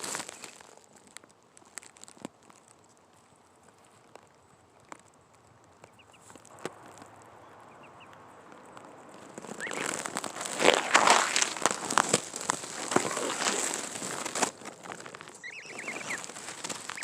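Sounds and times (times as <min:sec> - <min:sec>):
dry leaf litter crunching: 0:00.0 - 0:17.0
faint high chirps: 0:15.4 - 0:17.0.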